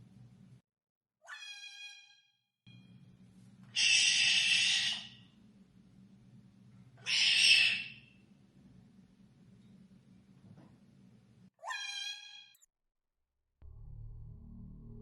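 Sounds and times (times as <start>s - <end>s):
parrot harsh screeches: 1.2s - 2.2s, 3.7s - 5.2s, 7.0s - 8.1s, 11.6s - 12.6s.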